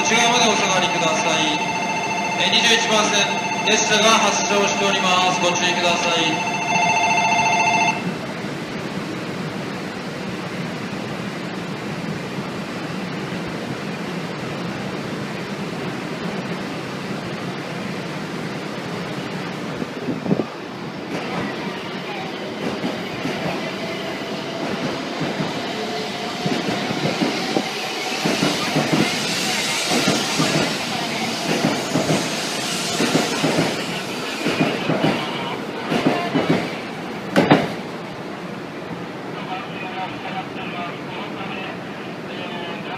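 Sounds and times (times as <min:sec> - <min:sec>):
train rushing: 0:00.0 - 0:42.9.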